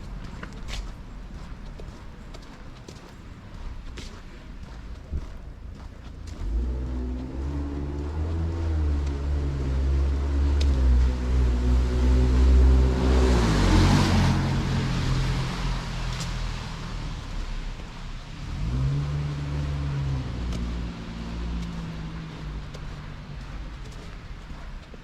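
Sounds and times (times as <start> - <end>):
vehicle engine humming: 0.0 - 25.0
engine revving as car pulls away: 6.2 - 24.9
vehicle rushing past: 6.4 - 24.7.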